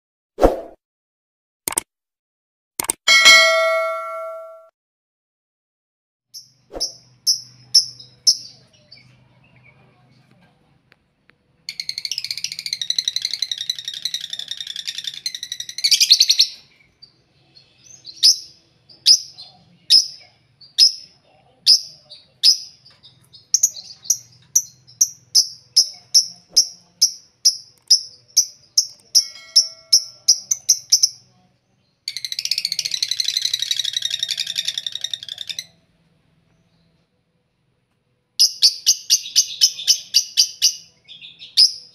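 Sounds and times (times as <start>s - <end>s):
lovebirds sharp high chirps: 6.4s - 9.1s, 11.7s - 35.8s, 38.4s - 41.9s.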